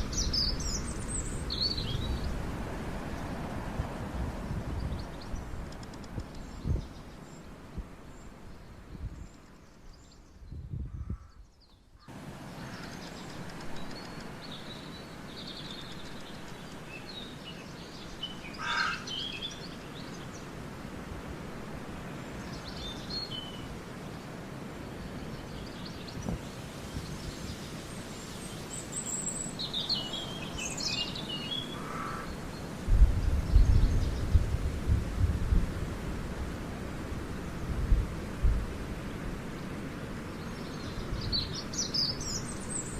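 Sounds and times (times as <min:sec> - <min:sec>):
songbirds chirping: 0:00.0 - 0:34.7, 0:35.8 - 0:42.9
low rumbling wind gusts: 0:00.0 - 0:42.9.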